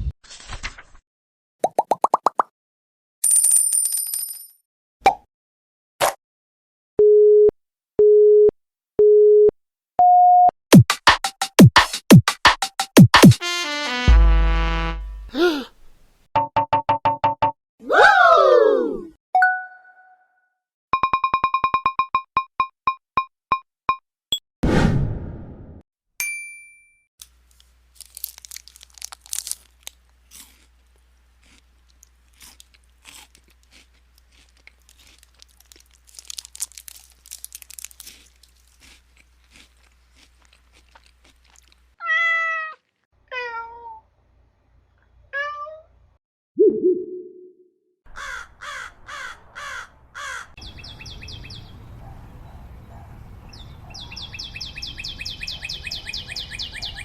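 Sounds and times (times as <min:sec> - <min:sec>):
cat meowing: 0:42.0 - 0:44.0.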